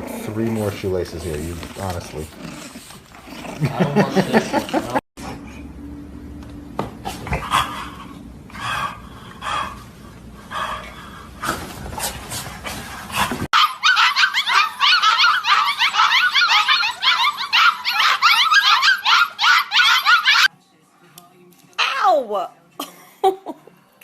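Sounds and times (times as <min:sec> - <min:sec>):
dog barking: 0:13.6 - 0:20.5
rapid high-pitched yelping: 0:13.6 - 0:20.5.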